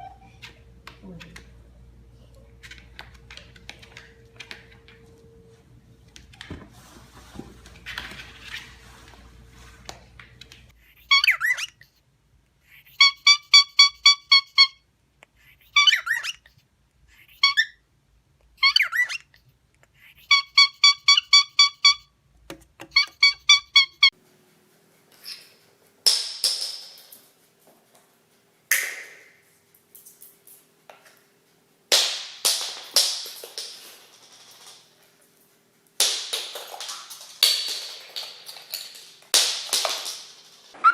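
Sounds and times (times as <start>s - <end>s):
parrot calling: 11.0s - 11.8s, 12.8s - 14.8s, 15.7s - 16.4s, 17.3s - 17.8s, 18.6s - 19.3s, 20.2s - 22.0s, 22.9s - 24.1s
parrot squawking: 11.0s - 11.8s, 12.8s - 14.8s, 15.7s - 16.4s, 17.2s - 17.8s, 18.6s - 19.3s, 20.2s - 22.0s, 22.9s - 24.1s.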